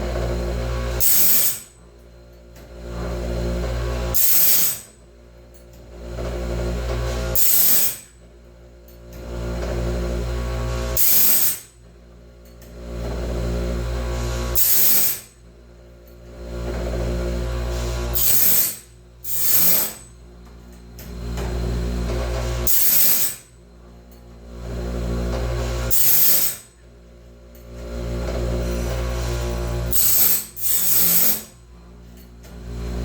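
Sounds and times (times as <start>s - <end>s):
grinding wheel hiss: 0.9s - 1.8s, 4.1s - 4.9s, 7.2s - 8.1s, 10.6s - 11.8s, 14.1s - 15.4s, 17.6s - 20.1s, 22.4s - 23.5s, 25.5s - 26.8s, 28.5s - 31.6s
motor hum: 5.4s - 33.0s.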